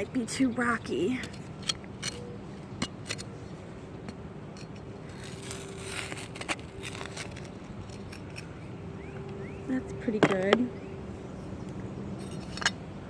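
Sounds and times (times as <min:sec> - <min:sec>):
tool clicking against stones: 0:01.2 - 0:03.4, 0:12.2 - 0:12.8
tool scraping through dirt: 0:04.5 - 0:08.5.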